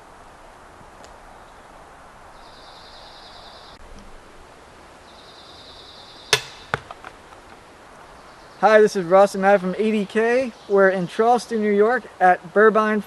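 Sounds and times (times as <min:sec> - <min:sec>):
sharp crack: 0:06.3 - 0:07.6.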